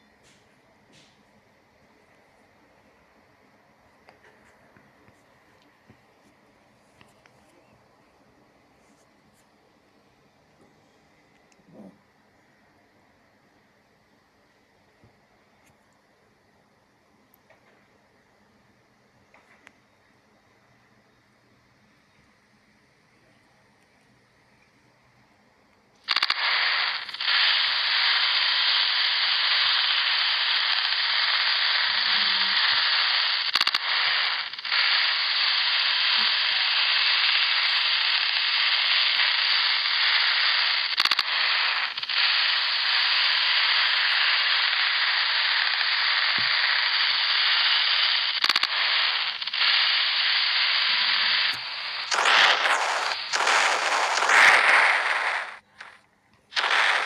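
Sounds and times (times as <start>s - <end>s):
loud hiss-like noise: 0.0s - 10.0s, 11.5s - 13.8s, 26.0s - 57.0s
rough crackling noise: 26.0s - 57.0s.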